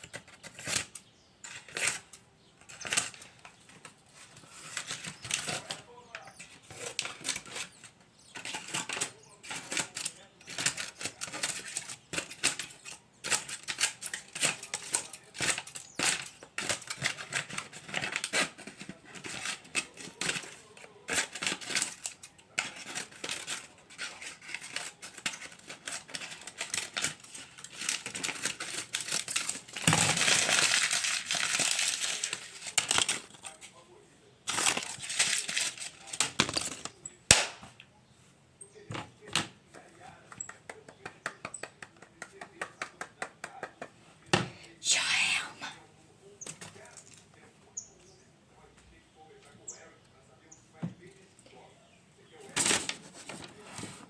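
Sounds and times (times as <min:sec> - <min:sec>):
tape crinkling and crackling: 0:00.0 - 0:33.8, 0:34.4 - 0:37.6, 0:52.3 - 0:54.0.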